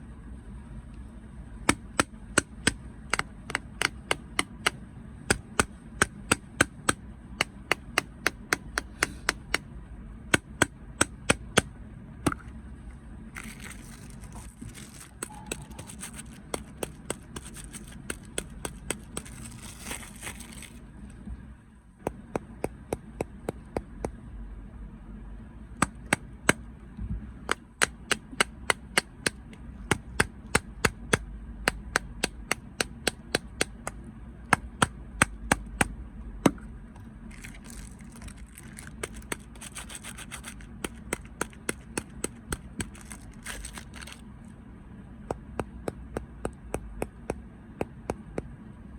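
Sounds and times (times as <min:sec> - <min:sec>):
crinkling rustling: 0:13.4 - 0:20.8, 0:37.3 - 0:44.3
crunchy snacks cracking: 0:13.4 - 0:20.8, 0:37.3 - 0:44.2.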